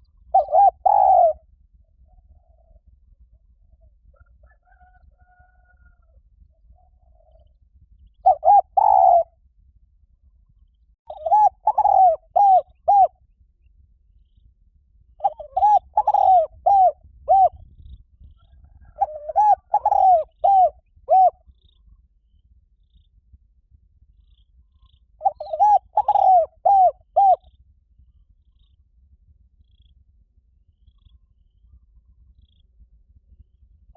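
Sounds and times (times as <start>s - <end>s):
dove cooing: 0.3s - 1.4s, 2.0s - 2.9s, 8.2s - 9.3s, 11.1s - 13.1s, 15.2s - 17.6s, 18.6s - 21.4s, 25.2s - 27.6s.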